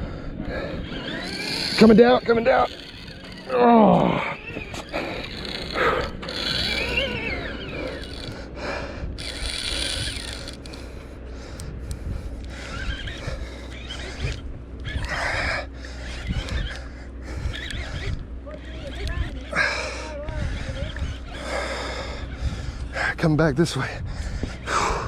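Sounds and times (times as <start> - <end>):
steady low hum: 0.0 - 25.0
groan-like vocal sounds: 3.4 - 7.0
man grunting and breathing hard: 23.8 - 25.0.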